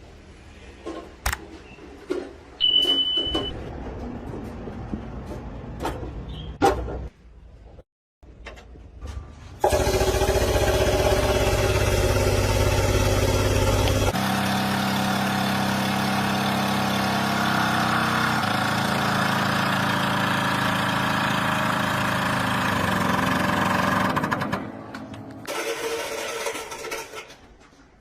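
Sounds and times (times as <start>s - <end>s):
engine running: 9.6s - 26.8s.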